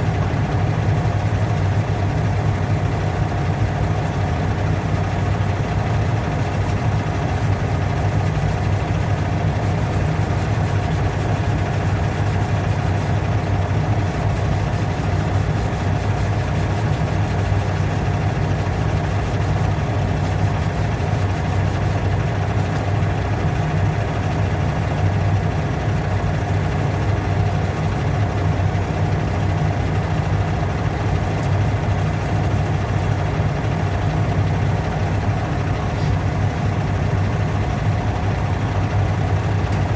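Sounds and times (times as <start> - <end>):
steady low motor hum: 0.0 - 39.9.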